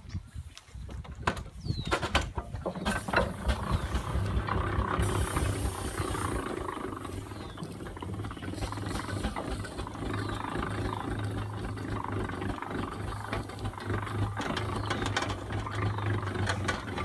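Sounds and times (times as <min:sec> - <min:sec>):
steam engine knocks and clanks: 0:01.2 - 0:17.0
low hum: 0:02.1 - 0:17.0
rumbling steam hiss: 0:02.8 - 0:17.0
sharp high steam hiss: 0:04.9 - 0:07.2.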